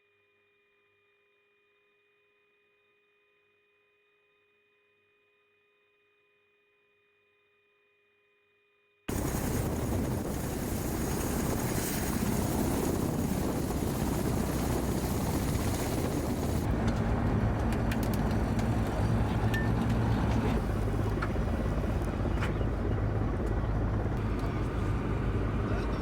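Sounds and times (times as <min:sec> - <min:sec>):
helicopter rotors droning: 0:09.1 - 0:26.0.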